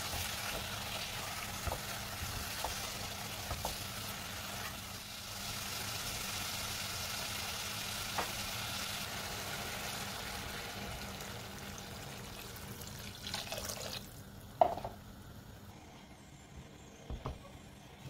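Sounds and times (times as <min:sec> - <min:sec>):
food sizzling in oil: 0:00.0 - 0:14.2
water pouring into pot: 0:11.7 - 0:14.1.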